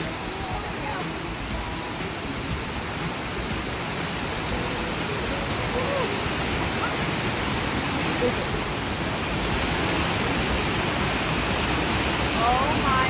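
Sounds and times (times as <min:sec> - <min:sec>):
faint voices: 0:00.0 - 0:09.6, 0:12.1 - 0:13.0
waterfall rushing: 0:00.0 - 0:13.0.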